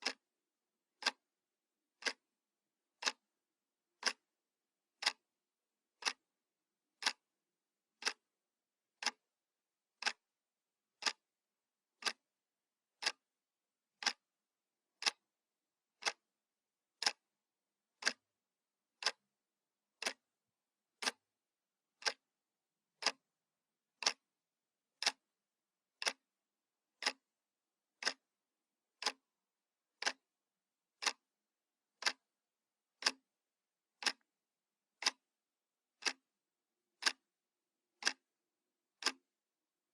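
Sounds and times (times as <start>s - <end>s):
clock ticking: 0.0s - 0.2s, 1.0s - 1.2s, 2.0s - 2.3s, 3.0s - 3.3s, 3.9s - 4.3s, 5.0s - 5.3s, 6.0s - 6.3s, 7.0s - 7.3s, 8.0s - 8.3s, 9.0s - 9.2s, 10.0s - 10.2s, 11.0s - 11.3s, 12.0s - 12.3s, 12.9s - 13.2s, 14.0s - 14.3s, 15.0s - 15.3s, 16.0s - 16.3s, 16.9s - 17.3s, 18.0s - 18.3s, 19.0s - 19.3s, 19.9s - 20.3s, 21.0s - 21.2s, 22.0s - 22.3s, 23.0s - 23.3s, 24.0s - 24.3s, 25.0s - 25.3s, 25.9s - 26.3s, 27.0s - 27.3s, 28.0s - 28.4s, 29.0s - 29.3s, 30.0s - 30.3s, 31.0s - 31.3s, 32.0s - 32.4s, 33.0s - 33.3s, 34.0s - 34.3s, 35.0s - 35.3s, 36.0s - 36.3s, 37.0s - 37.3s, 38.0s - 38.3s, 39.0s - 39.3s.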